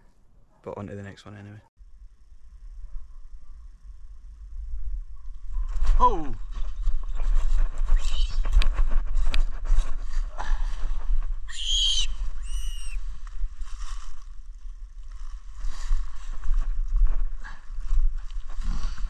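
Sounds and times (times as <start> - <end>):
wind on microphone: 2.5 - 19.0
dry leaves rustling: 5.6 - 19.0
bird screeching: 11.5 - 13.0.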